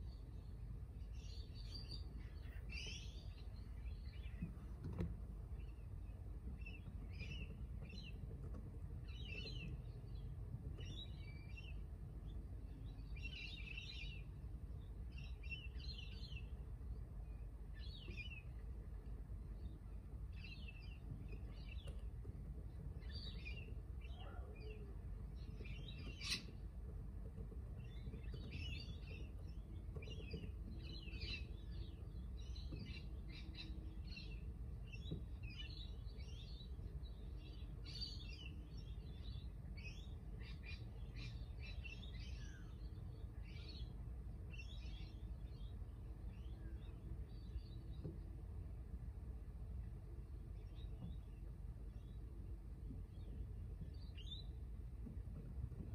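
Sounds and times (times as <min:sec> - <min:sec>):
low background rumble: 0:00.0 - 0:55.9
birds chirping: 0:22.7 - 0:26.6.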